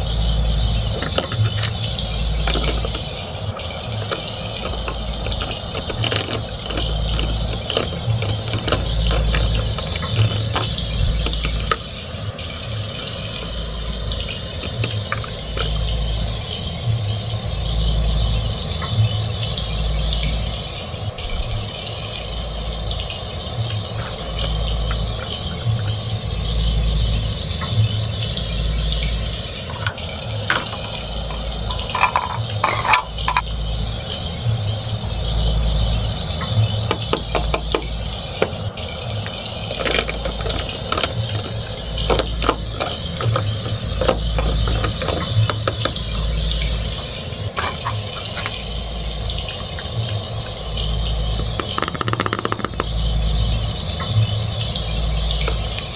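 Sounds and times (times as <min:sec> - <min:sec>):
steady hiss: 0:00.0 - 0:55.9
plastic toys clicking and tapping: 0:00.8 - 0:16.0, 0:29.7 - 0:33.6, 0:36.5 - 0:48.7, 0:51.4 - 0:53.0.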